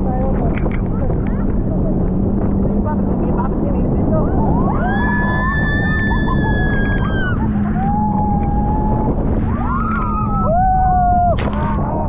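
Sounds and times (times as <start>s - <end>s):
low motor hum: 0.0s - 12.0s
rushing wind and water: 0.0s - 12.0s
people screaming and whooping: 4.2s - 12.0s.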